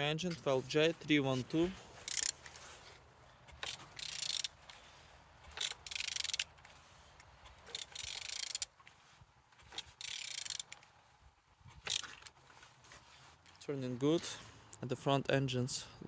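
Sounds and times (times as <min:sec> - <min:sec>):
engine turned over by hand: 0:01.6 - 0:08.9.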